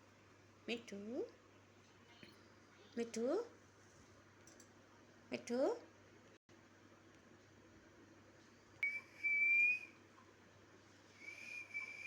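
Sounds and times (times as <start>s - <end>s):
long whistled notes: 8.8s - 10.0s, 11.2s - 12.0s.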